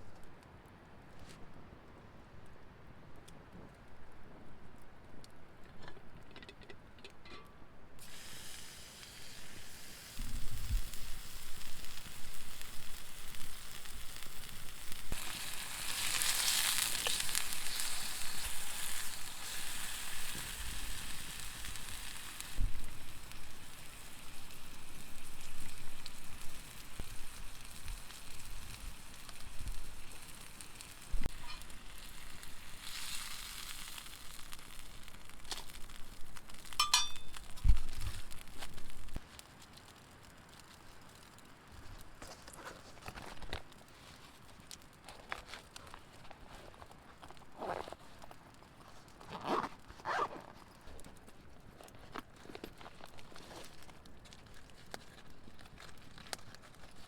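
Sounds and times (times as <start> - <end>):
sizzling in a hot pan: 8.0 - 39.2.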